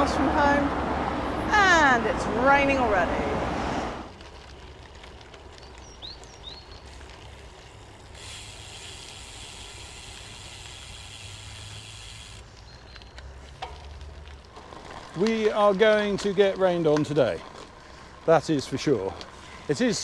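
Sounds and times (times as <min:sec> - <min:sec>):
bike wind and road rumble: 0:00.0 - 0:20.0
steady hiss: 0:07.6 - 0:12.4.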